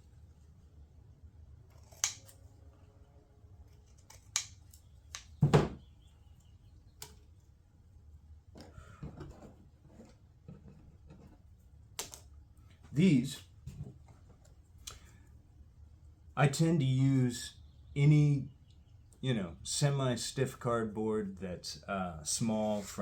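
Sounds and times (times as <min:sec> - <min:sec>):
objects knocking on a workbench: 0:05.4 - 0:05.8.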